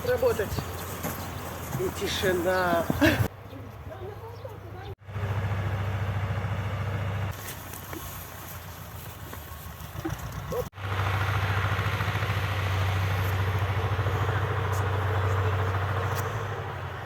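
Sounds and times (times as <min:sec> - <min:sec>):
small engine pulsing hum: 0:04.3 - 0:08.0, 0:08.6 - 0:17.0.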